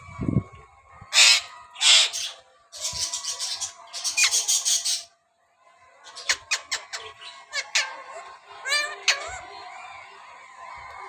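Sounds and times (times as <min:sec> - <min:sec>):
parakeet raspy chattering: 0:06.1 - 0:09.5.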